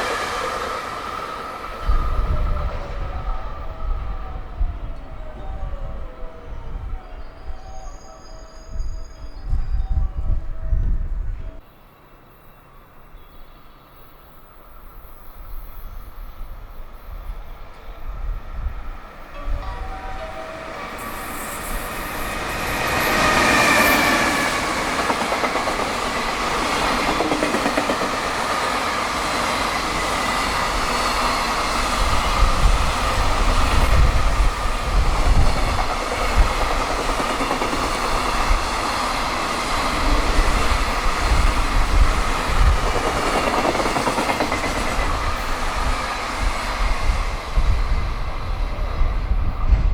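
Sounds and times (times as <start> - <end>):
electric locomotive passing: 0.0 - 49.9.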